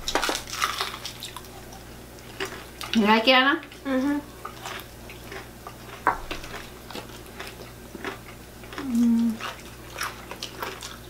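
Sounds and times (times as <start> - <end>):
crunching and chewing: 0.0 - 3.0, 3.6 - 11.0
person humming: 3.8 - 4.3, 8.8 - 9.4.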